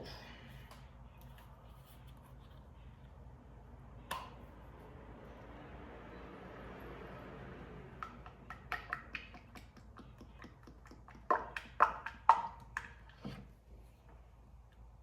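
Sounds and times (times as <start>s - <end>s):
irregular clicking pops: 8.0s - 13.2s.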